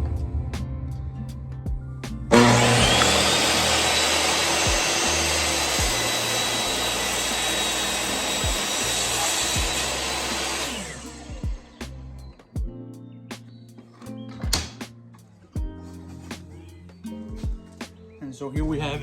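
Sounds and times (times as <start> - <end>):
electric saw cutting wood: 2.3 - 11.9.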